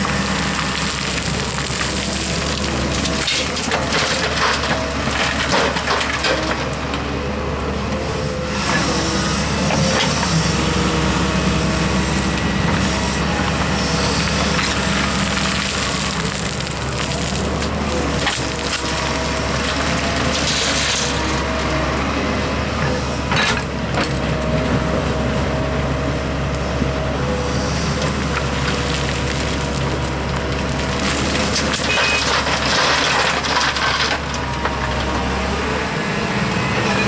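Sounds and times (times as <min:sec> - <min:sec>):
soil and rock crunching: 0:00.0 - 0:07.9, 0:08.6 - 0:37.0
excavator engine running: 0:00.0 - 0:37.0.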